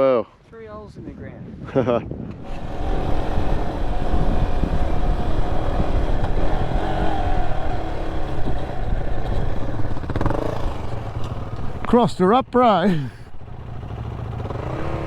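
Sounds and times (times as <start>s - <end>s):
wind rush: 0.8s - 11.8s
motorcycle engine rumbling: 2.4s - 15.0s.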